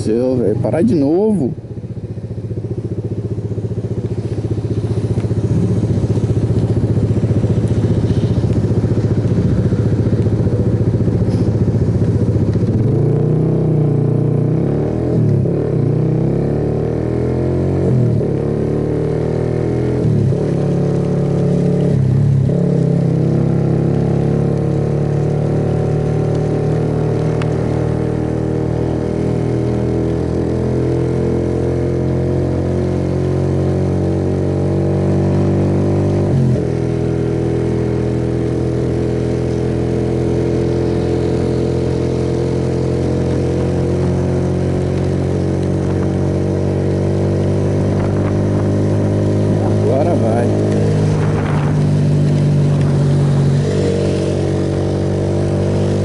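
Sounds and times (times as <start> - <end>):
motorcycle engine idling: 0.2 - 12.6.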